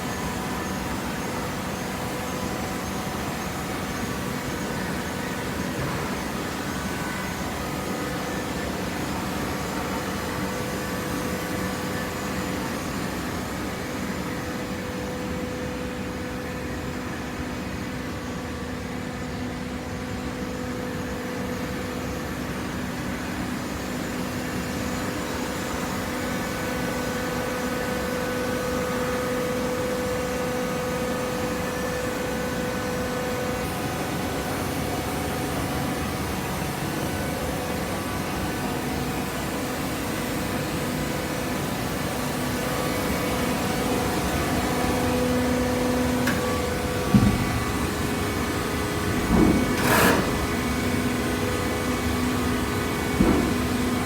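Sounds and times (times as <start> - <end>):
faint machine whine: 0.0 - 54.0
hydraulic baler humming: 24.4 - 54.0.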